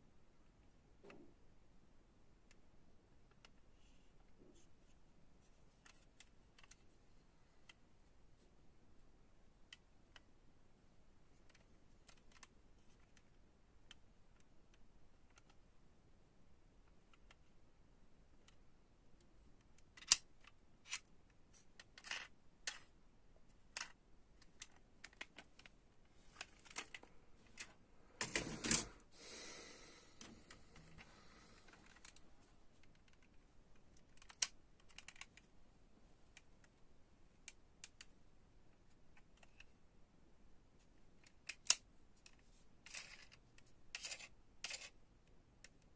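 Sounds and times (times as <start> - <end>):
toy cars clicking and tapping: 21.8 - 22.8, 41.2 - 44.9.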